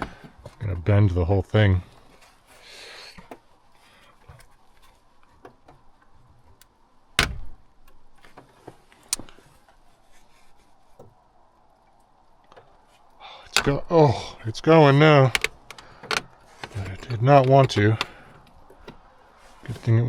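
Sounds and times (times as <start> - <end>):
wrench scraping: 13.5 - 13.9, 15.2 - 19.0
sharp metallic clicks: 15.1 - 18.9.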